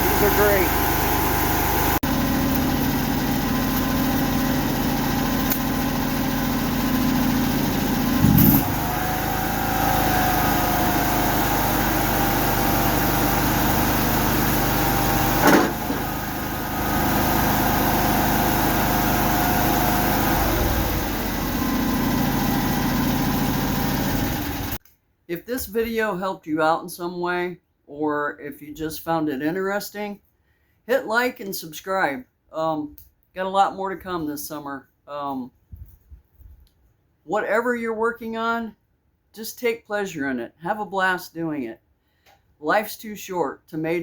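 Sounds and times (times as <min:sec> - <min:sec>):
small engine running: 0:00.0 - 0:24.8
loud clunk: 0:08.1 - 0:08.9, 0:15.4 - 0:16.2.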